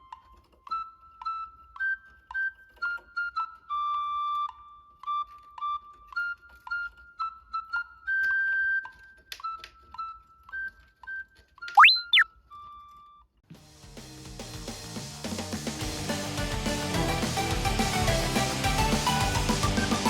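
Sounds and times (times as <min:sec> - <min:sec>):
bouncy flute-like melody: 0:11.8 - 0:12.2, 0:18.7 - 0:20.0.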